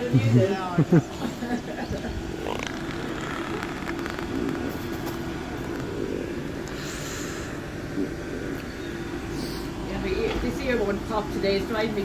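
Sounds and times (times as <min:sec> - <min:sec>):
electric train humming: 0:00.0 - 0:12.0.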